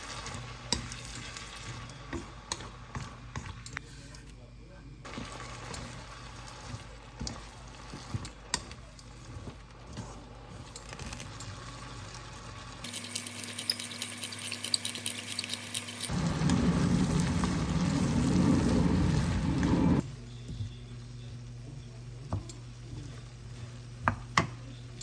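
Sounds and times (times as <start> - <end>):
food sizzling in a pan: 0.0 - 3.2, 5.1 - 10.6.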